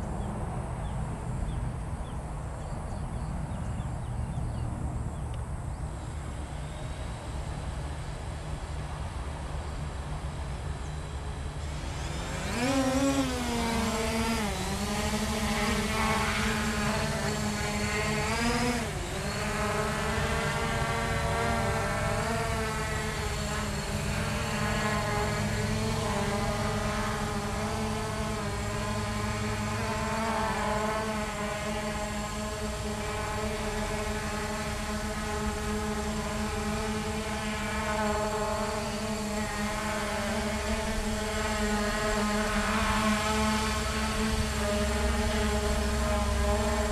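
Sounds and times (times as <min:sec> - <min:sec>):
drone motors whining: 0:05.2 - 0:46.9.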